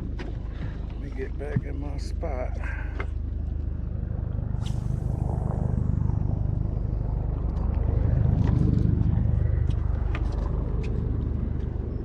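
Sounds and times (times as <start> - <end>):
brief swish: 4.6 - 5.2.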